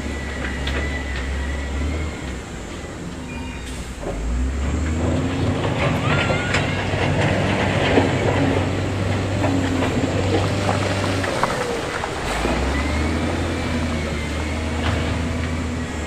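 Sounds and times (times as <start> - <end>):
diesel engine running: 0.0 - 16.0
short high squeals: 0.2 - 4.0.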